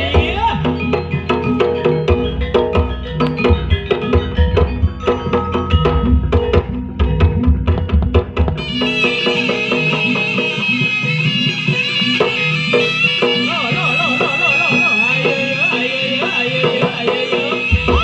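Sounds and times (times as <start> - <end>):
deep drums: 0.0 - 9.6, 17.7 - 18.0
metallophone and gong-chime tones: 0.6 - 8.0
shrill reed trumpet melody: 8.6 - 18.0.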